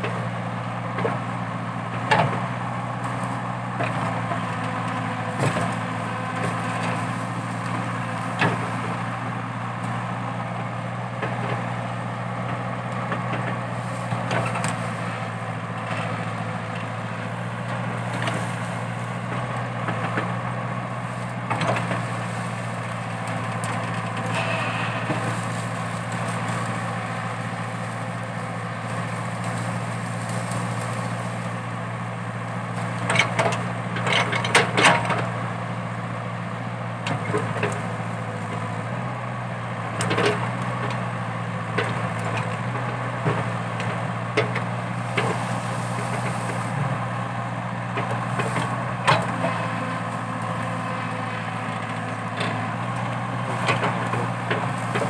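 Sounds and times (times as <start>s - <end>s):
excavator diesel engine: 0.0s - 55.0s.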